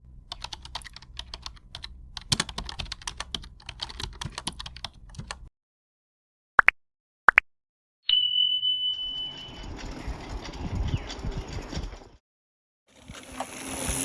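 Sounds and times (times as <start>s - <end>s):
keyboard typing: 0.3s - 5.5s
rising electronic chirp: 8.1s - 9.7s.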